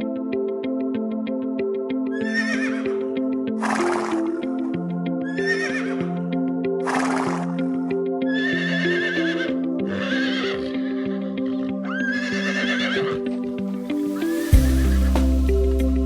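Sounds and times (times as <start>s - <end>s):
background music: 0.0s - 16.0s
horse neighing: 8.3s - 13.3s.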